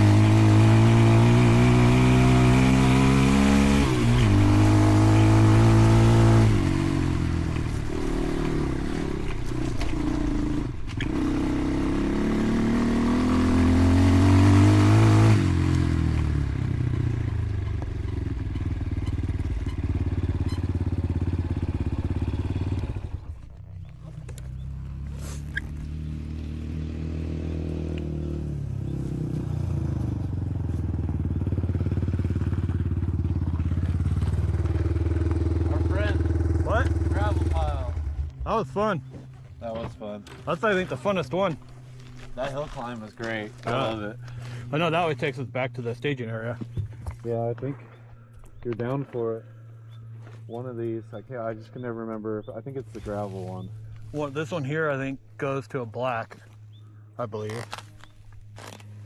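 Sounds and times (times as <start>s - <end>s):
dirt bike engine revving: 0.0s - 46.0s.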